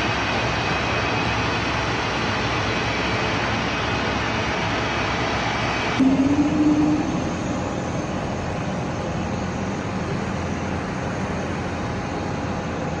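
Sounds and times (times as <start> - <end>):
jet engines running: 1.5 - 13.0
faint whining tones: 6.0 - 12.5.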